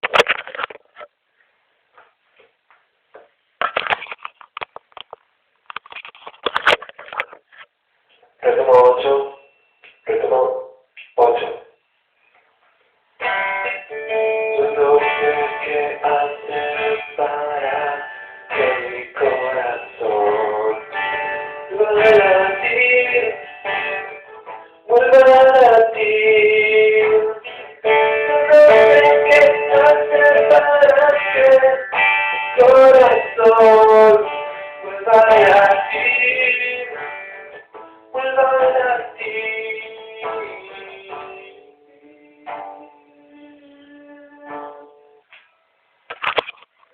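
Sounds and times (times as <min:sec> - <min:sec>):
guitar: 0:00.0 - 0:46.9
man singing: 0:08.4 - 0:11.7, 0:13.5 - 0:44.9.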